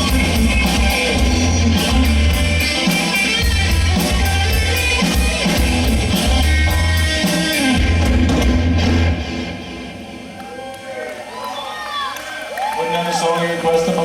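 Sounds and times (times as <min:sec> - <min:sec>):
drum kit with cymbals: 0:00.0 - 0:09.4
bass guitar: 0:00.0 - 0:10.2
electric guitar: 0:00.0 - 0:10.4.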